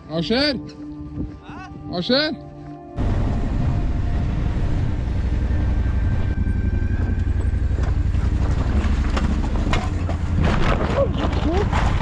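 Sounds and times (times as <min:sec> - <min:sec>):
wind noise on microphone: 0:00.9 - 0:02.0
motorcycle engine rumbling: 0:03.0 - 0:12.0.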